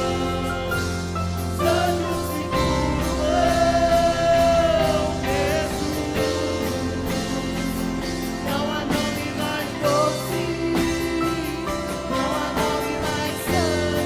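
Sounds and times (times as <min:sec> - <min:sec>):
band accompaniment with steady beat: 0:00.0 - 0:14.0
person singing long notes: 0:01.6 - 0:11.6.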